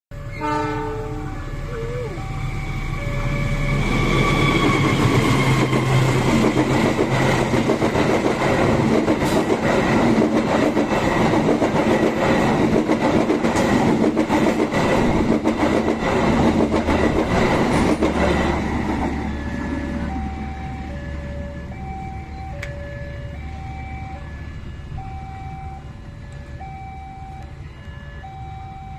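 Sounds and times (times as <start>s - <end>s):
train rumbling past: 0.1s - 28.9s
wheels clattering over rails: 4.3s - 19.5s.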